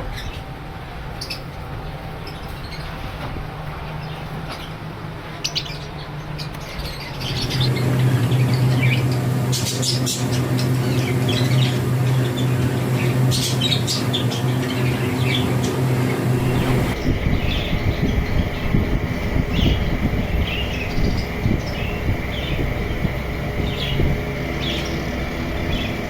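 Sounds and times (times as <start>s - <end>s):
low mechanical hum: 0.0s - 26.0s
birds chirping and squawking: 5.4s - 26.0s.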